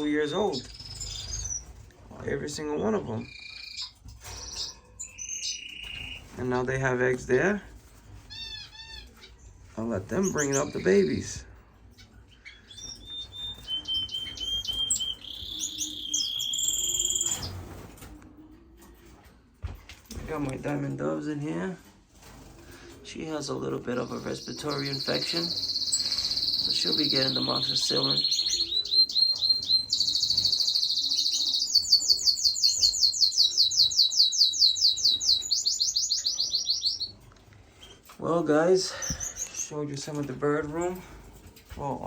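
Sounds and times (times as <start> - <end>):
finches chirping and whistling: 0.0 - 6.4, 8.2 - 18.0, 23.6 - 39.8.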